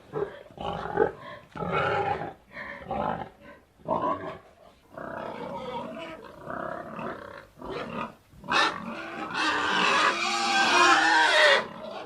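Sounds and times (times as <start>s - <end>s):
pig grunting: 0.0s - 12.0s
pig high call: 8.5s - 12.0s.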